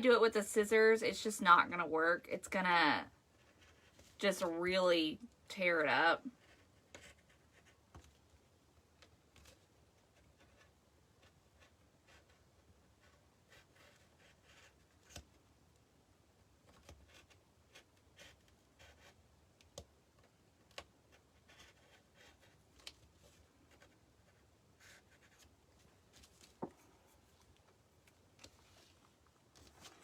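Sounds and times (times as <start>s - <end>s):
small clicks and taps: 19.6s - 20.9s.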